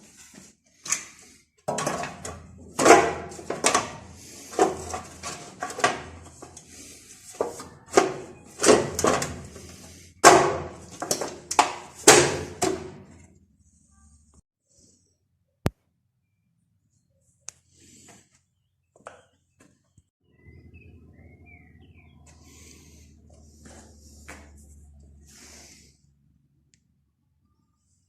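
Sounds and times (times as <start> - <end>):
irregular knocks and clatters: 1.7 - 6.6.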